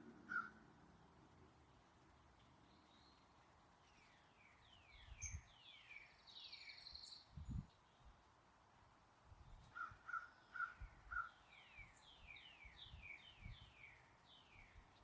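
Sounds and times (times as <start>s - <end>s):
light outdoor hiss: 0.0s - 15.0s
songbird singing: 3.9s - 7.6s, 10.4s - 15.0s.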